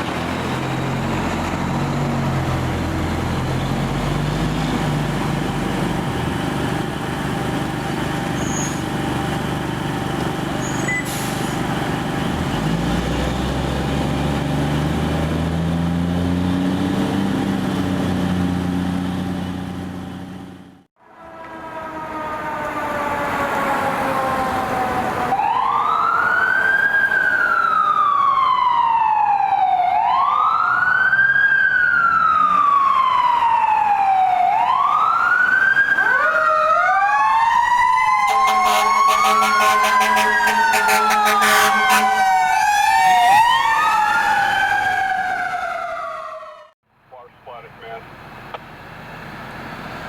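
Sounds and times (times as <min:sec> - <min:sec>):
fire truck siren wailing: 0:00.0 - 0:46.8
low horn blast: 0:38.2 - 0:42.4.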